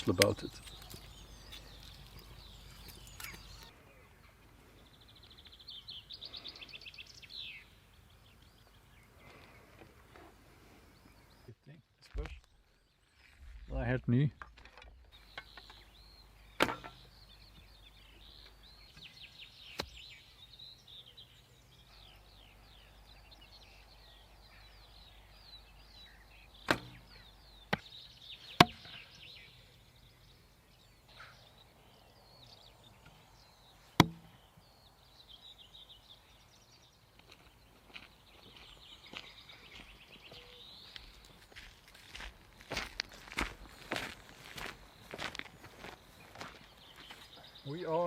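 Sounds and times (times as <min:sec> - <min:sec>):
sharp knocks: 0:16.6 - 0:17.0.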